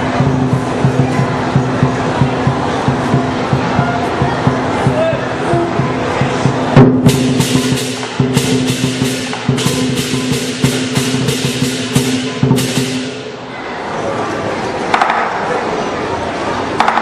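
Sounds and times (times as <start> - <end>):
drum beating fast rhythm: 0.0 - 13.4
clashing cymbals: 4.5 - 13.4.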